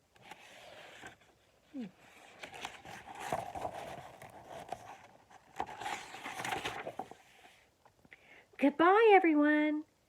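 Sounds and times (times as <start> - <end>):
paper page rustling and turning: 0.2 - 1.4, 2.0 - 7.6.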